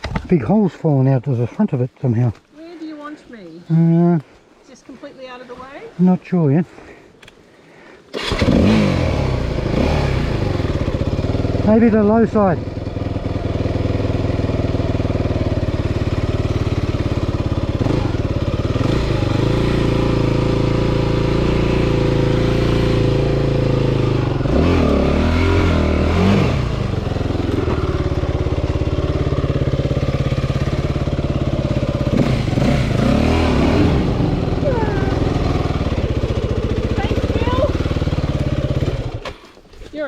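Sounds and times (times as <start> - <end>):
dirt bike engine revving: 8.2 - 39.5.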